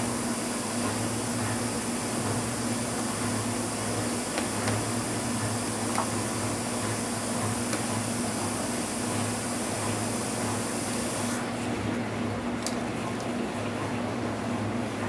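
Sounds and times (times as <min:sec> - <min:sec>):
fan-like machine humming: 0:00.0 - 0:15.0.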